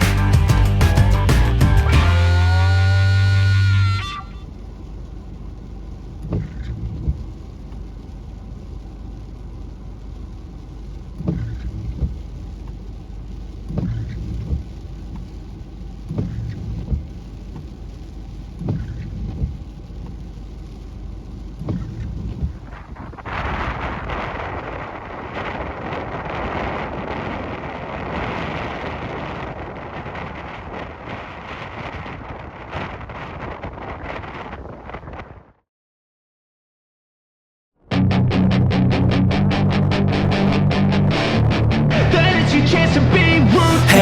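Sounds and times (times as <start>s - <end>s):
ocean surf rumbling: 21.0s - 34.9s, 39.3s - 44.0s.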